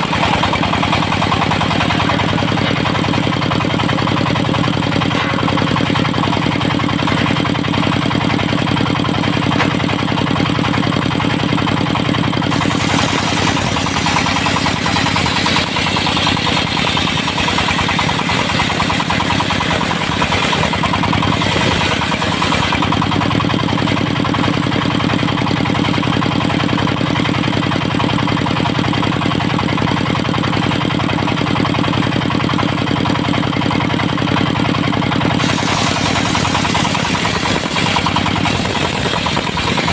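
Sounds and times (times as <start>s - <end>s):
circular saw cutting wood: 0.0s - 10.5s, 12.4s - 23.8s, 35.4s - 39.9s
diesel engine running: 0.0s - 39.9s.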